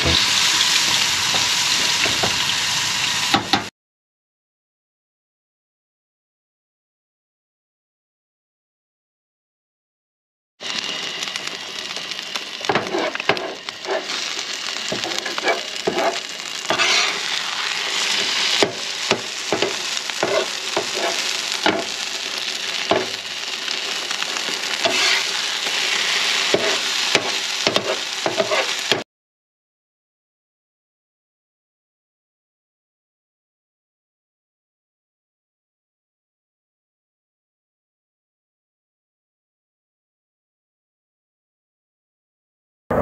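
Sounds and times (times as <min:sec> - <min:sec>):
food sizzling on a griddle: 0:00.0 - 0:03.7, 0:10.6 - 0:29.0
spatula scraping and tapping griddle: 0:12.6 - 0:22.1, 0:22.7 - 0:29.0.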